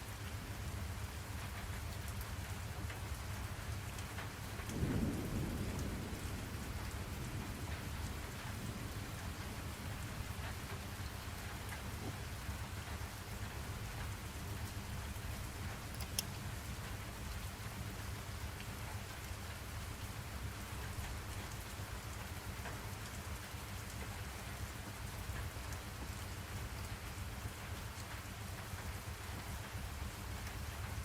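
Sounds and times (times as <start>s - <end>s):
steady rain falling: 0.0s - 31.0s
sharp click: 15.9s - 16.3s.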